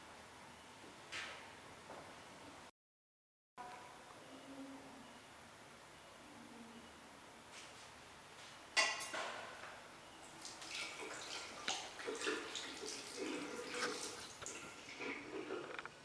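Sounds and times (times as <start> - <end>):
tap water splashing into sink: 10.3 - 14.6.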